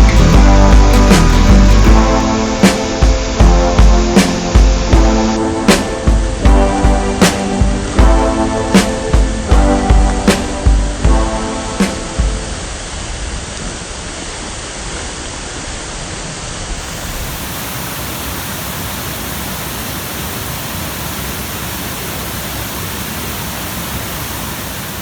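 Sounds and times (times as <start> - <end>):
waterfall rushing over rocks: 1.0 - 6.4, 12.4 - 25.0.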